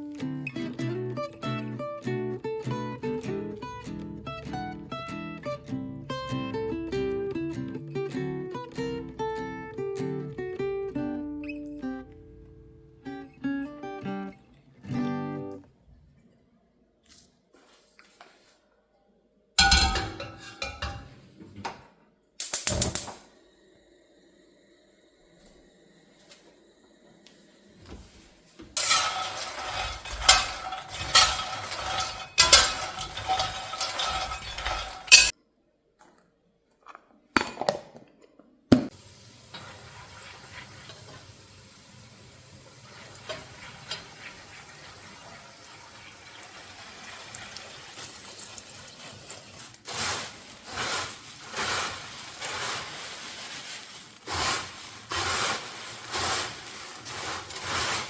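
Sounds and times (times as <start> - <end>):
metal utensils clattering on pans: 19.6 - 21.3, 22.4 - 23.1, 28.8 - 35.3, 43.0 - 45.0, 49.1 - 58.0
food frying hiss: 28.8 - 35.3, 38.9 - 58.0
rhythmic stirring strokes: 28.8 - 35.3.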